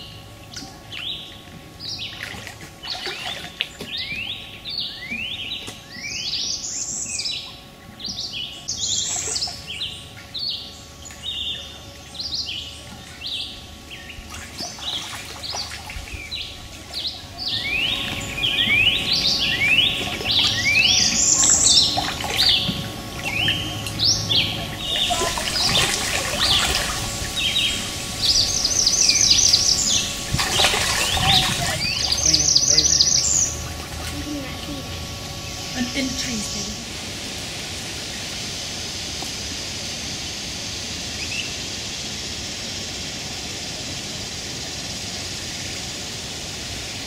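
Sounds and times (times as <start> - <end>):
birds whistling: 0.0 - 33.8
high bird trill: 15.0 - 33.7.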